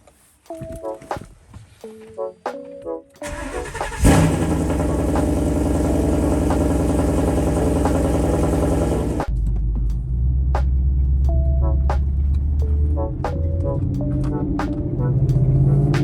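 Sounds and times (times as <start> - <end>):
car engine starting and idling: 3.2 - 9.3.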